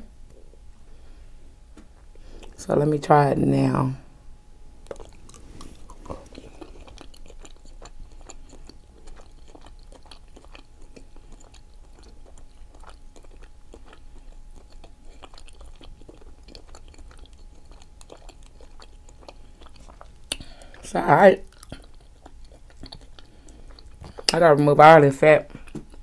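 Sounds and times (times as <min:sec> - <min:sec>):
close-miked chewing: 0:02.3 - 0:02.6, 0:04.8 - 0:24.5, 0:25.5 - 0:26.0.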